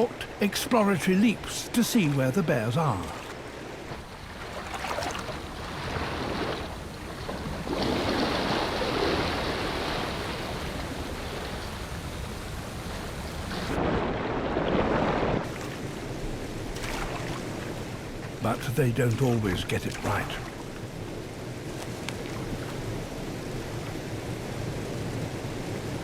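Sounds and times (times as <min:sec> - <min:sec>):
waterfall rushing water: 0:00.0 - 0:03.2, 0:18.4 - 0:20.8.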